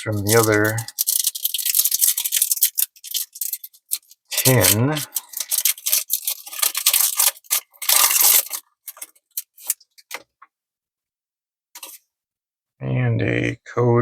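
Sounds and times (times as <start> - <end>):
foil pack crinkling and tearing: 0.0 - 10.2.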